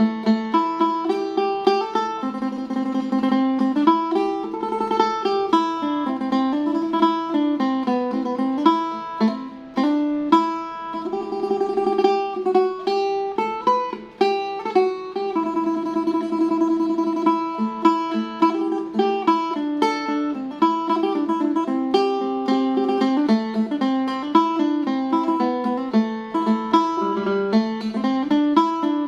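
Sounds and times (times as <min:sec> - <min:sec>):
plucked lute melody: 0:00.0 - 0:29.0.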